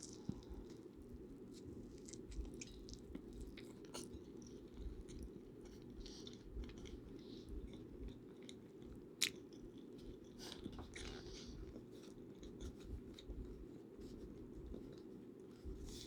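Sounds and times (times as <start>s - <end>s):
steady low hum: 0.0s - 8.8s
person chewing food: 0.0s - 13.3s.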